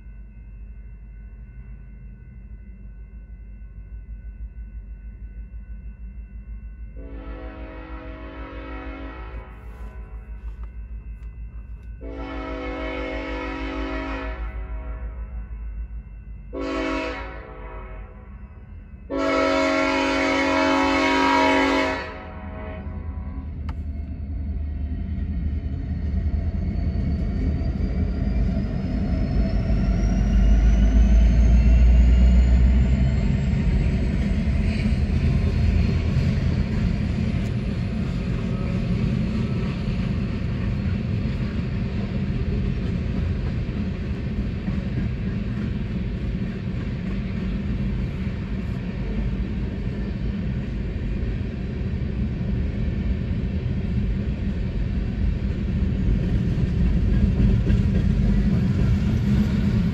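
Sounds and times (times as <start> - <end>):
freight train rumbling past: 4.2 - 59.9
train horn blowing: 7.0 - 10.6, 12.0 - 15.4, 16.5 - 18.3, 19.1 - 23.5
rolling clatter of wagons on rails: 32.4 - 50.6, 55.1 - 59.9.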